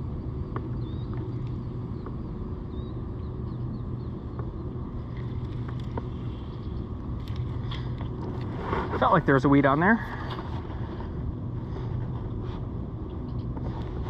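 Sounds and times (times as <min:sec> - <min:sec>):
bird chirp: 0:00.8 - 0:04.7.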